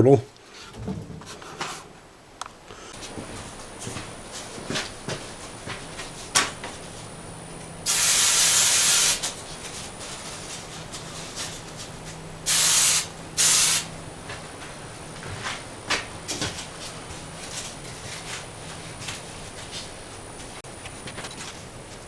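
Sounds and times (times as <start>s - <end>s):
aerosol can spraying: 7.9s - 9.4s, 12.5s - 13.9s.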